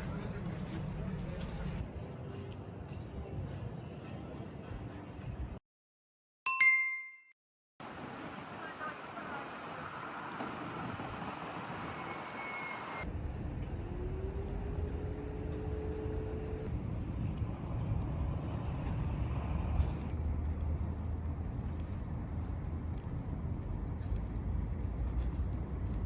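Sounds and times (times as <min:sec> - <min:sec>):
low rumble of vehicles: 0:00.0 - 0:05.6, 0:07.8 - 0:26.0
passing vehicle engine hum: 0:07.8 - 0:26.0.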